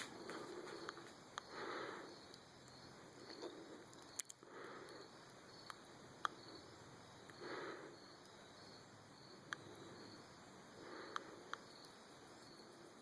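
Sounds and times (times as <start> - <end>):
crickets chirping: 0.0 - 13.0
sharp clicks: 2.3 - 6.4.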